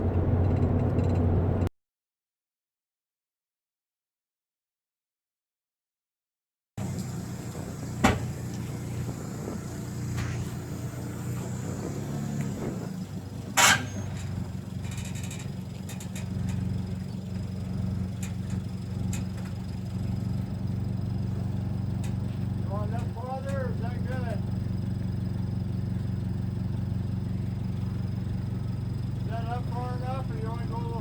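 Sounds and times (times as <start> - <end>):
vehicle engine idling: 0.0 - 1.7, 6.8 - 31.0
short metallic clank: 13.6 - 16.7.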